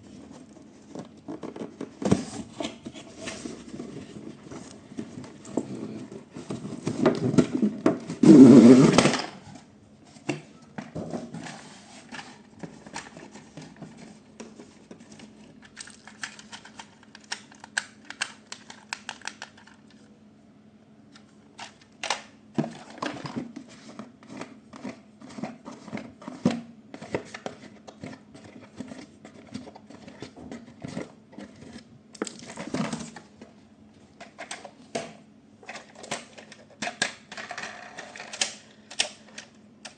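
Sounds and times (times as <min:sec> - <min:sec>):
toys clicking and rattling: 0:15.6 - 0:20.0.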